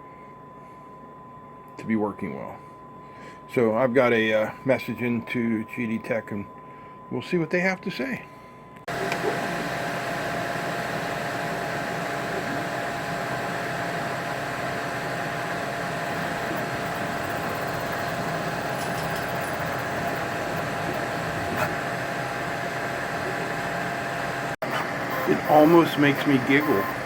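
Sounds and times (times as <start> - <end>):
whining motor tones: 8.9 - 27.0.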